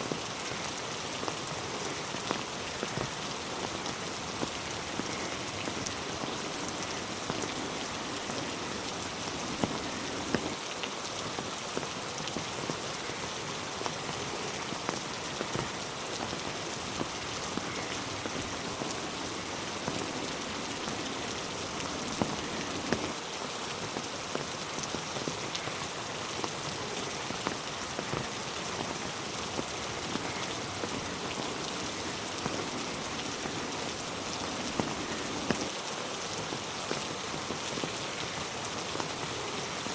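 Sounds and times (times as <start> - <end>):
raindrops striking close by: 0.0 - 39.9
steady rain hiss: 0.0 - 39.9.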